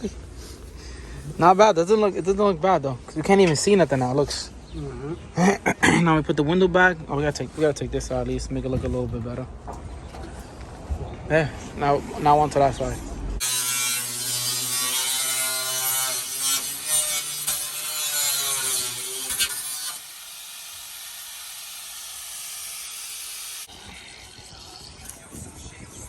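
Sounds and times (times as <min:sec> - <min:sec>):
power tool cutting sheet metal: 0:13.4 - 0:23.7.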